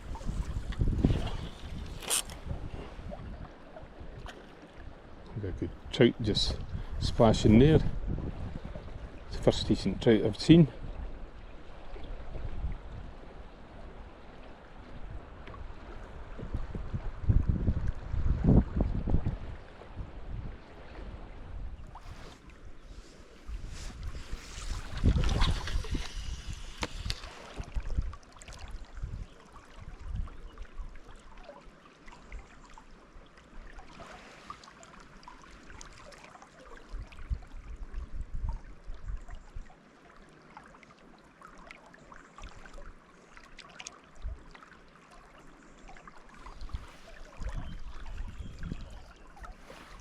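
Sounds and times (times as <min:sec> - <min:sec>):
wind buffeting microphone: 0:00.0 - 0:04.3, 0:05.3 - 0:09.6, 0:14.9 - 0:30.4, 0:46.4 - 0:50.0
river water trickling: 0:00.0 - 0:50.0.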